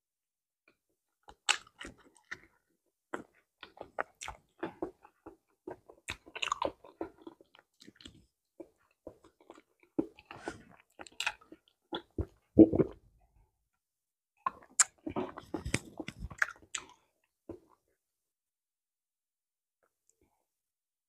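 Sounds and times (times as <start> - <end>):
wet chewing clicks and smacks: 1.3 - 13.0, 14.4 - 17.7.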